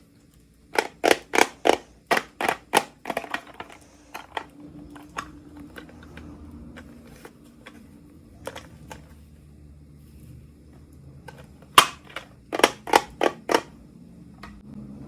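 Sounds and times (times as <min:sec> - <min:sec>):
plastic packaging clicking and snapping: 0:00.7 - 0:07.8, 0:11.3 - 0:13.7.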